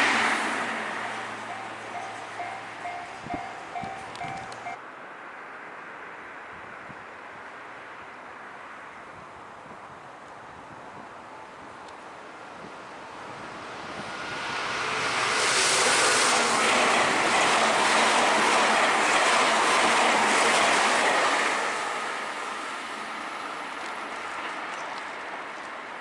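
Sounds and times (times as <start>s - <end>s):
train passing at speed: 0.0s - 4.8s, 12.2s - 26.0s.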